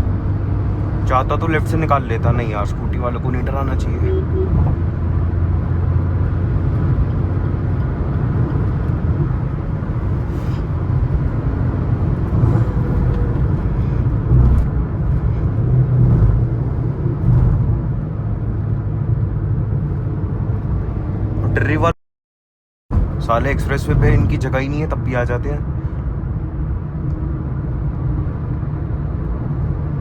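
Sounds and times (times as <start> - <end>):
car engine and road noise: 0.0 - 22.0, 22.9 - 30.0.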